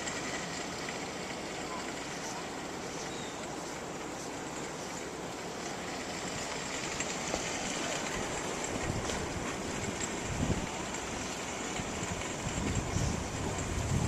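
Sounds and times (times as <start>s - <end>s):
wind buffeting microphone: 6.4s - 14.0s
strong wind blowing: 7.9s - 14.0s.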